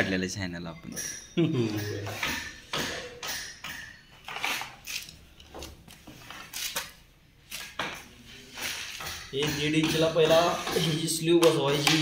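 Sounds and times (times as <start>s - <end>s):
pipe fittings and tools clinking: 0.9s - 6.9s.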